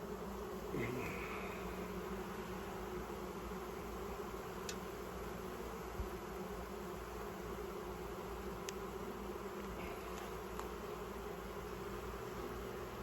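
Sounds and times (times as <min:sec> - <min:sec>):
bees buzzing: 0:00.0 - 0:13.0
faint clicks: 0:04.6 - 0:04.8.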